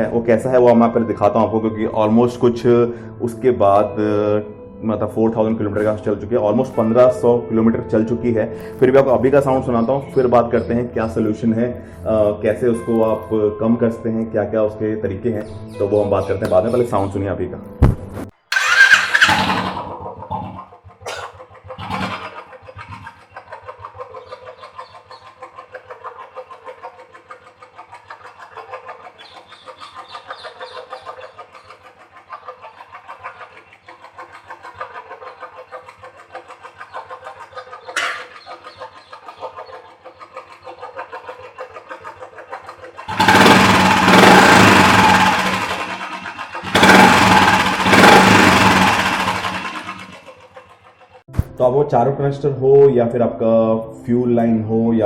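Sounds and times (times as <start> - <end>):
valve train ticking: 18.5 - 23.1, 38.0 - 38.4, 43.1 - 50.3
motorcycle engine running: 18.5 - 23.3, 38.0 - 38.5, 43.1 - 50.6.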